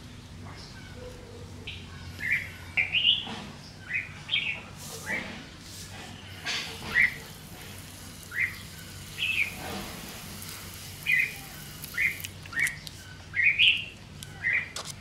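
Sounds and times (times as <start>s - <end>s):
bird chirping: 0.5s - 5.2s, 8.1s - 9.6s, 10.4s - 14.8s
water spray hissing on soil: 4.8s - 12.4s.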